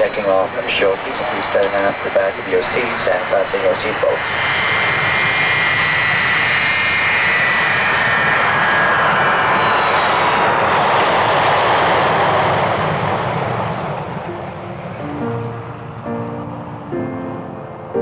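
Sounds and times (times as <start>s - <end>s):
high engine whine: 0.0s - 18.0s
jet engines roaring: 0.0s - 18.0s.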